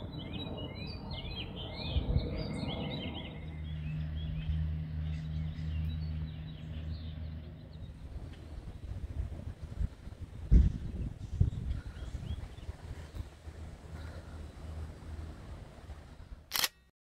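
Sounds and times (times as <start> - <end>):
songbirds chirping and singing: 0.0 - 9.0
low steady hum: 0.0 - 16.9.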